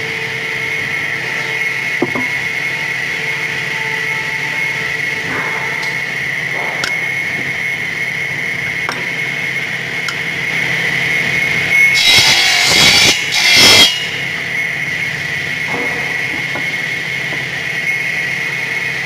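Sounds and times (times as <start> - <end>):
sawmill machinery whining: 0.0 - 19.0
saw blade cutting wood: 11.7 - 14.3.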